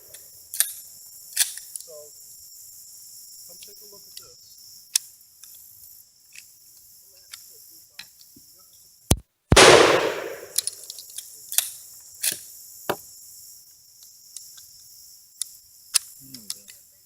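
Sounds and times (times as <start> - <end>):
faint gunshot cracks: 9.5 - 10.7
loud echoing gunshot: 9.5 - 10.7.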